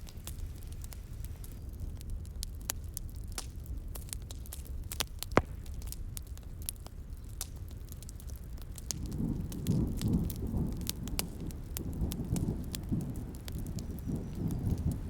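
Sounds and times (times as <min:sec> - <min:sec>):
wood fire crackling and popping: 0:00.0 - 0:15.0
distant thunder rumbling: 0:09.1 - 0:15.0.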